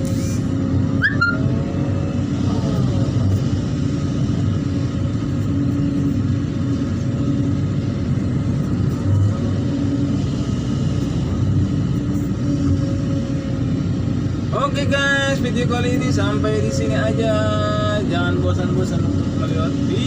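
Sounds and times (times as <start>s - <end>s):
excavator engine rumbling: 0.0s - 20.0s
brief rising squeal: 1.0s - 1.5s.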